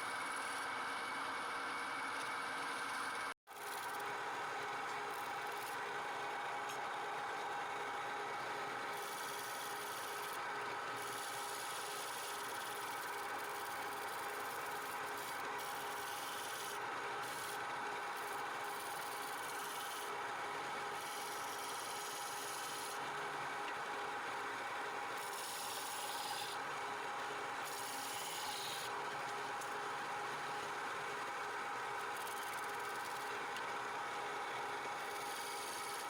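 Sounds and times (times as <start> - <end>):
turning tool scraping wood: 21.0 - 23.0, 25.1 - 26.6, 35.0 - 36.0
wood lathe humming: 21.0 - 23.0, 25.2 - 26.6, 35.0 - 36.0.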